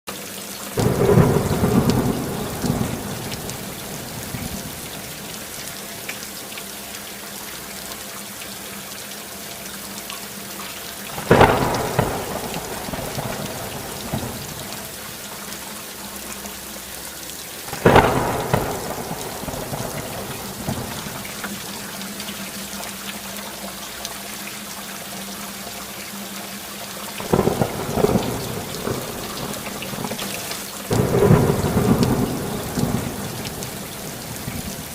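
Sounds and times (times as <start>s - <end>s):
heavy rain: 0.1s - 34.9s
thunder cracking and rumbling: 0.8s - 5.4s, 11.1s - 15.0s, 17.7s - 21.7s, 27.2s - 34.9s.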